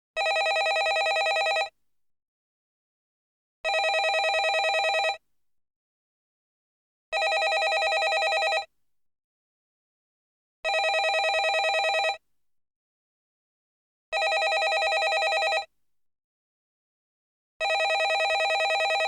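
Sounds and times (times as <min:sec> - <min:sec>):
landline telephone ringing: 0:00.2 - 0:01.7, 0:03.7 - 0:05.2, 0:07.2 - 0:08.7, 0:10.7 - 0:12.2, 0:14.2 - 0:15.7, 0:17.6 - 0:19.0.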